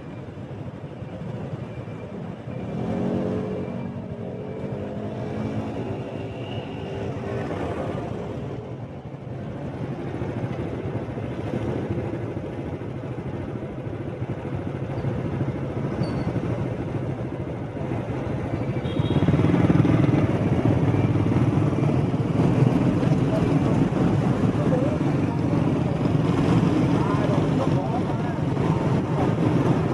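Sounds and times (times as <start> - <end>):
road and wind noise: 0.0 - 29.9
motorbike engine humming: 8.7 - 29.9.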